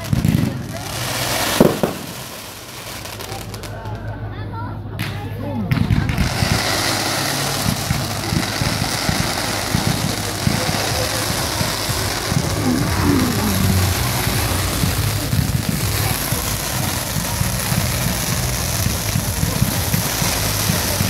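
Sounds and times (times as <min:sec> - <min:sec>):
fireworks crackling and popping: 0:00.0 - 0:04.3, 0:05.0 - 0:21.0.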